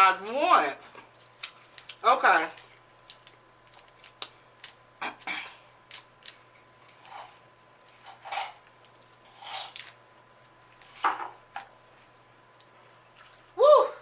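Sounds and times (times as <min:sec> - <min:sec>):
wet chewing and smacking: 0:01.0 - 0:04.8, 0:05.7 - 0:11.0.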